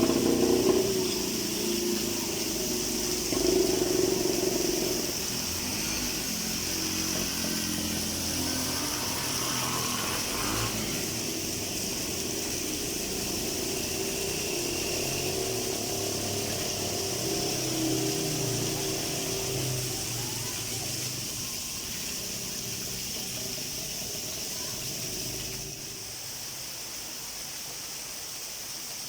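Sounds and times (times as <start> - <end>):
vehicle engines running: 0.0 - 26.3
rain hiss: 0.0 - 29.0.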